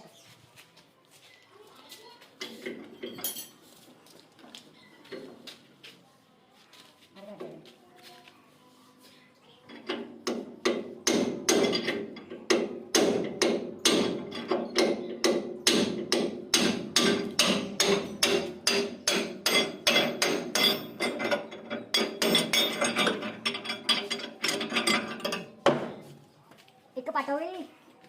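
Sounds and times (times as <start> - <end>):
hammer on metal ringing: 10.3 - 21.3.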